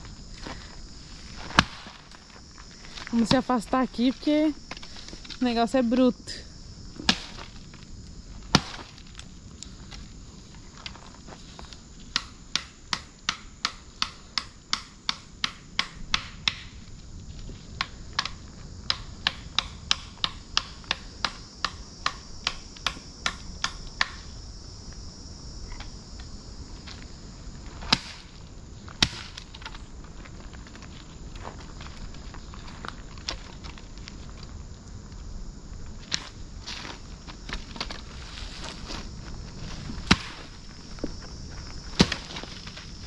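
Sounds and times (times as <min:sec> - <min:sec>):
machete chopping into a log: 0:08.5 - 0:08.9, 0:27.8 - 0:28.3, 0:29.0 - 0:29.4, 0:40.0 - 0:40.4, 0:42.0 - 0:42.4.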